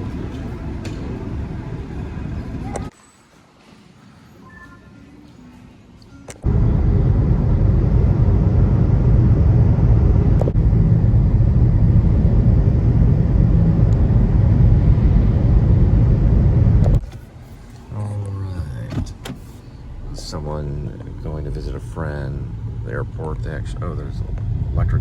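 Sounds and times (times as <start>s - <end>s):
car driving rumble: 6.4s - 17.0s, 17.9s - 25.0s
road and wind noise: 6.4s - 17.9s, 18.7s - 25.0s.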